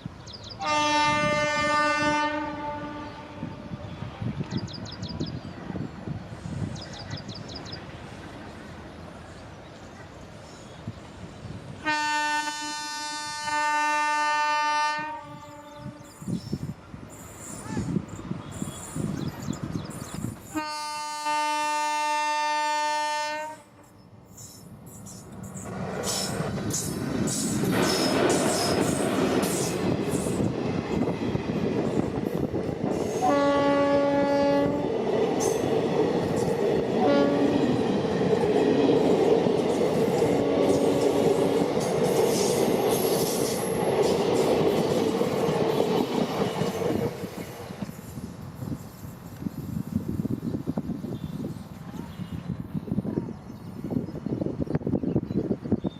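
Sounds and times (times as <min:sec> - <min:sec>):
train horn blast: 0:00.6 - 0:03.8, 0:11.8 - 0:16.2, 0:20.5 - 0:23.8, 0:33.2 - 0:34.9, 0:37.0 - 0:37.8, 0:40.4 - 0:41.2
train wheels clattering over rails: 0:24.4 - 0:33.7, 0:34.3 - 0:49.8.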